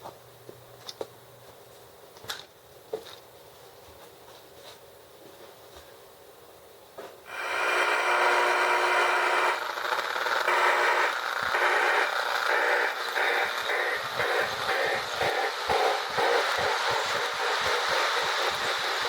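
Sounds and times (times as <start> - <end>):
toy train rattling and whirring: 7.3 - 19.0.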